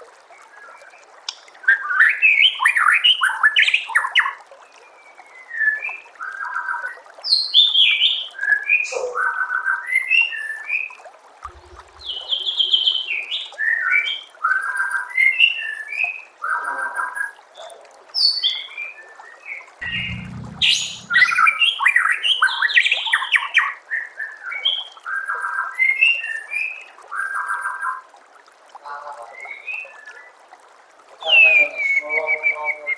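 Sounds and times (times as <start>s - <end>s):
low thumps: 19.8s - 21.4s.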